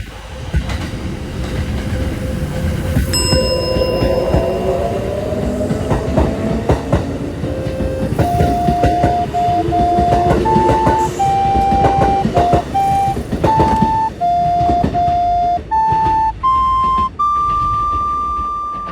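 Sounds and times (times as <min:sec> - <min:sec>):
train clattering: 0:00.0 - 0:18.9
electronic beep tune: 0:07.6 - 0:18.9.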